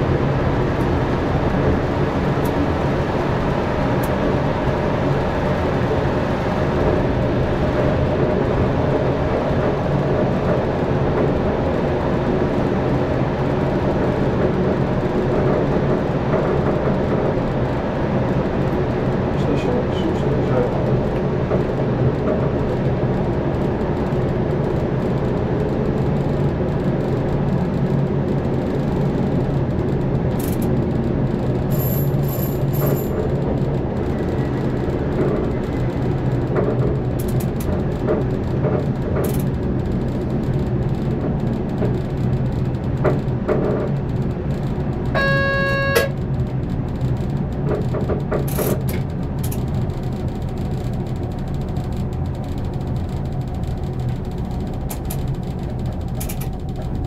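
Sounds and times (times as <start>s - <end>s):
train rumble and motor hum: 0.0s - 57.0s
track clicks: 45.1s - 46.2s
train horn tone: 45.2s - 46.2s.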